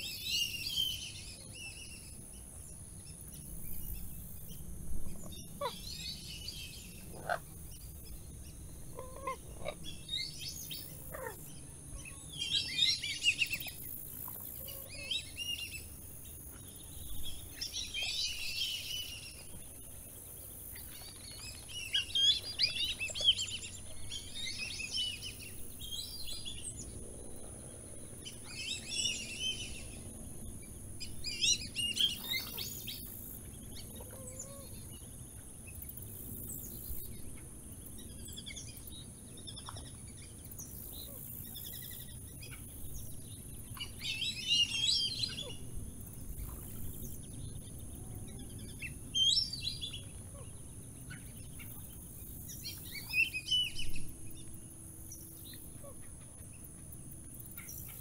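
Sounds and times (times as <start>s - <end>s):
low outdoor background noise: 0.0s - 58.0s
wild birds chirping: 0.0s - 58.0s.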